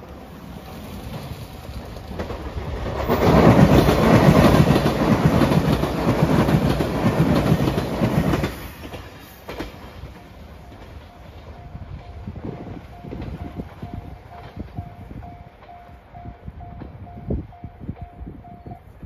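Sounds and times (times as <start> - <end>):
train wheels clacking over rail joints: 1.0 - 15.8.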